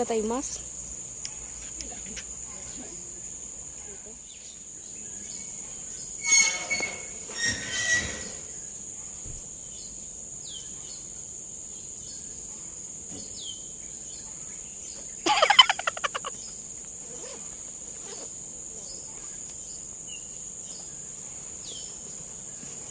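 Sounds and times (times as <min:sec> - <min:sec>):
high insect drone: 0:00.0 - 0:22.9
bird calls: 0:14.2 - 0:16.6.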